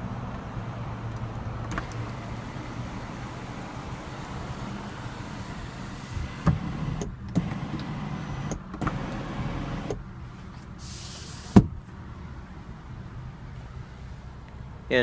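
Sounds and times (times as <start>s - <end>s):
moonroof motor humming: 1.1s - 10.0s
sharp thump: 11.5s - 11.8s.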